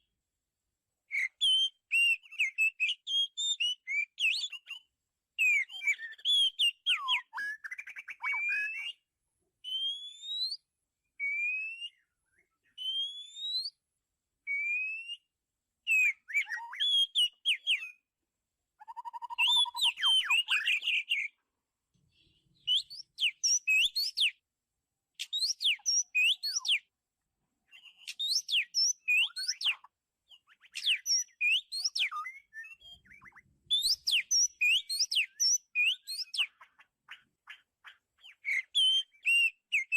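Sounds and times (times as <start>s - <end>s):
bird whistling song: 1.1s - 9.0s, 9.6s - 13.8s, 14.5s - 18.0s, 18.8s - 21.4s, 22.6s - 24.4s, 25.2s - 26.9s, 27.7s - 39.9s.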